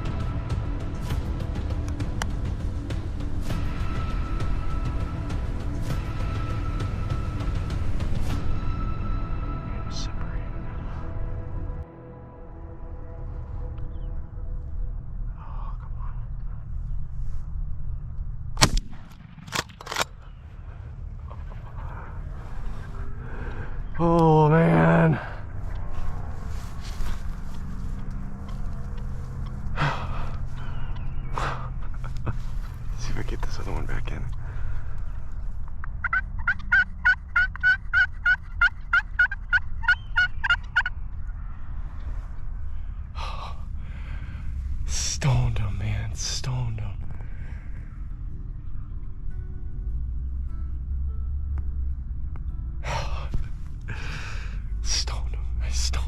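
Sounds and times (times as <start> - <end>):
low rumble: 0.0 - 56.0
quieter sharp cracks: 18.5 - 22.2
shotgun shot: 18.6 - 20.2
turkey calling: 27.5 - 32.8, 35.9 - 41.7.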